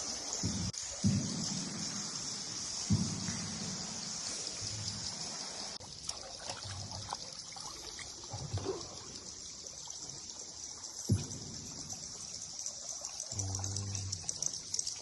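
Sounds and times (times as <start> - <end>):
steady high-pitched hiss: 0.0 - 15.0
water trickling and dripping: 0.0 - 15.0
soft low thumps: 0.4 - 4.2, 11.0 - 12.1.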